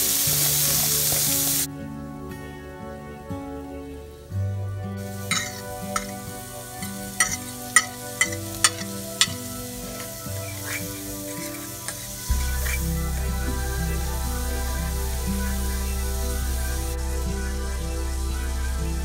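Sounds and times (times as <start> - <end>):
food sizzling in a skillet: 0.0 - 1.7, 5.0 - 17.2
utensil clinking and scraping plate: 5.2 - 12.9.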